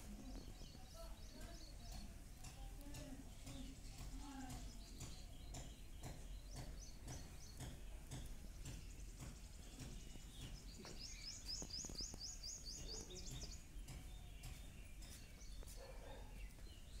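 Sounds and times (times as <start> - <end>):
faint background noise: 0.0 - 17.0
bird singing rising chirps: 8.7 - 17.0.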